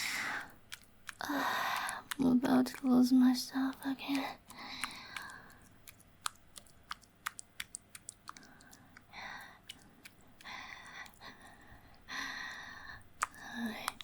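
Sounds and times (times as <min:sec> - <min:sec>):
lip sounds: 0:00.0 - 0:14.0
wet mouth clicks: 0:00.0 - 0:14.0
heavy breaths: 0:01.2 - 0:02.2, 0:04.5 - 0:05.7, 0:08.3 - 0:14.0.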